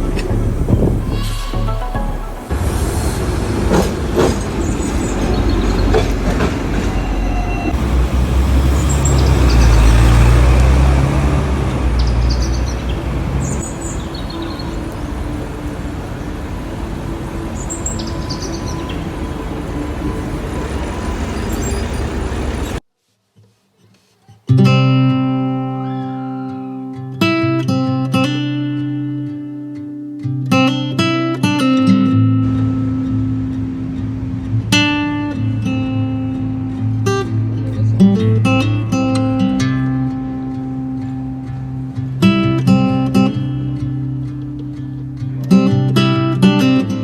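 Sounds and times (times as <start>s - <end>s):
strummed acoustic guitar music: 0.0s - 2.8s, 10.9s - 22.6s, 23.9s - 47.0s
vehicle traffic rumble: 0.0s - 22.9s, 32.0s - 47.0s
short high squeaks: 1.0s - 2.3s, 17.5s - 22.8s.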